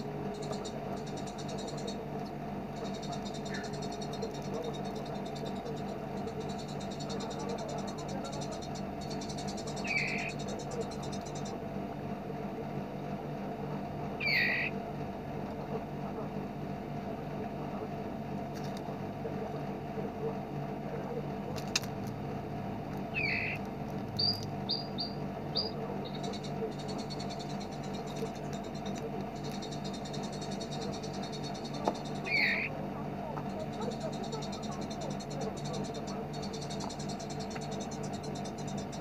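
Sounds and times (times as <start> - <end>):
songbird buzzy trill: 0.0 - 12.9, 14.1 - 15.0, 23.0 - 39.0
low background hum: 0.0 - 39.0.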